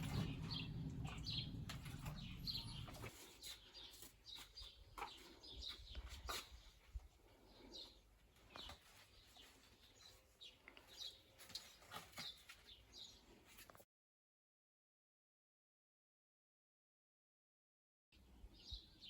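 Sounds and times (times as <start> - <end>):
distant bird chirps: 0.0 - 6.7.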